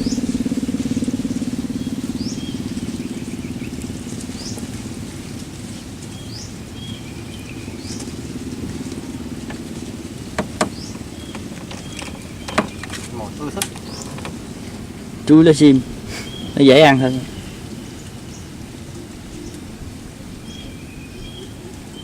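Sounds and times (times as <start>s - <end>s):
small engine humming: 0.0s - 19.7s
bird chirps: 1.7s - 4.7s, 10.3s - 14.8s, 16.1s - 19.7s, 20.4s - 22.0s
sharp knocks: 9.4s - 9.7s, 10.3s - 14.4s.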